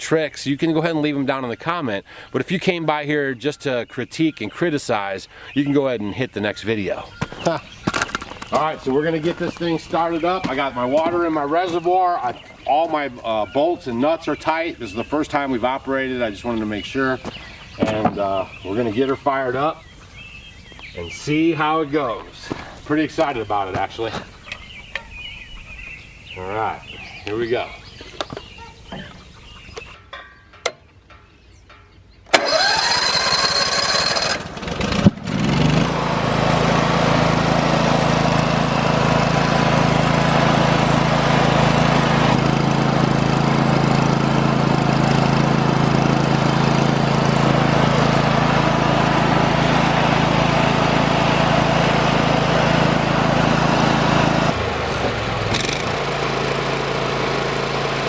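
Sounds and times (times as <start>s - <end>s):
engine running: 6.7s - 30.0s, 32.4s - 58.0s
gasoline engine cranking: 32.3s - 34.9s, 53.6s - 58.0s.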